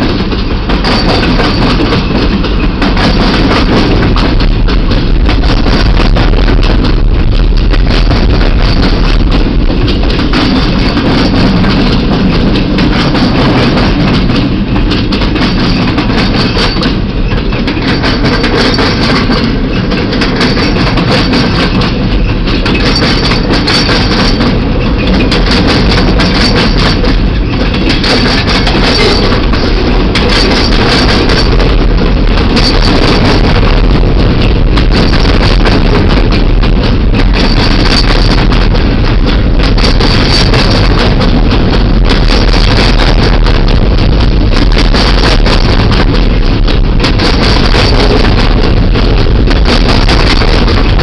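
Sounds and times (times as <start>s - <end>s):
diesel locomotive engines: 0.0s - 51.0s
train wheels rumbling on rails: 0.0s - 51.0s.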